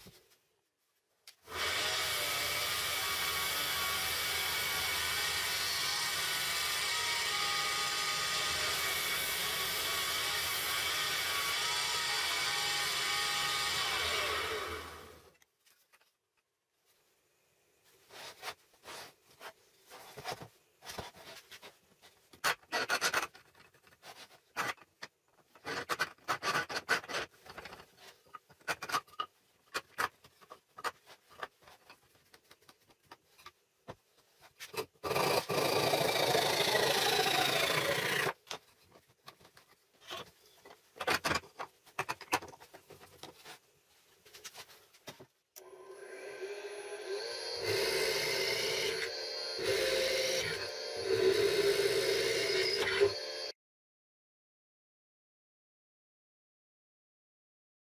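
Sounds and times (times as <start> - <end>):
power tool motor running: 45.7 - 53.5.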